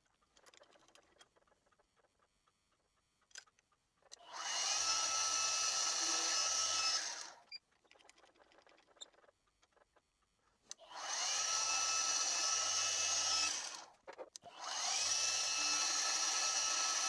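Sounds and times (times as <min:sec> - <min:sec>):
milling machine spindle whining: 0:04.2 - 0:07.4, 0:10.9 - 0:13.8, 0:14.5 - 0:17.0.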